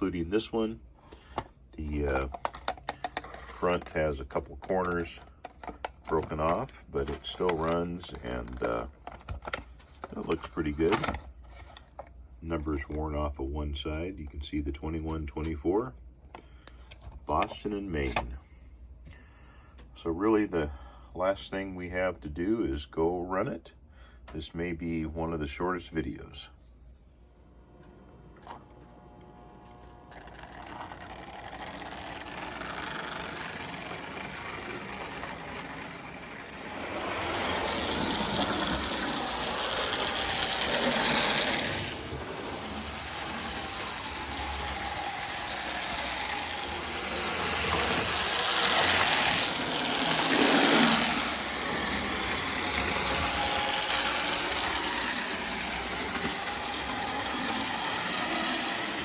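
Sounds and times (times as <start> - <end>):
toy train whirring and rattling: 1.0 - 12.1, 29.3 - 59.0.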